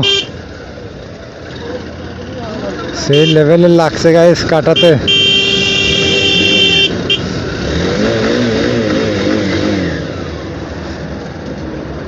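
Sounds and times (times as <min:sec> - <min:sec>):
vehicle horn: 0:00.0 - 0:00.4, 0:03.1 - 0:03.5, 0:04.7 - 0:07.3
traffic engines running: 0:00.0 - 0:12.0.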